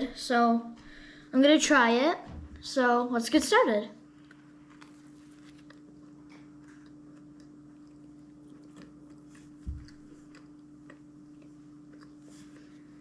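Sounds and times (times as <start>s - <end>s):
chewing soft donut: 4.0s - 13.0s.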